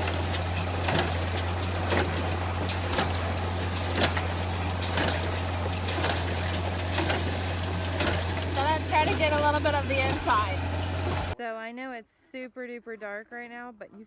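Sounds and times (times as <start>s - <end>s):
tractor engine hum: 0.0s - 11.4s.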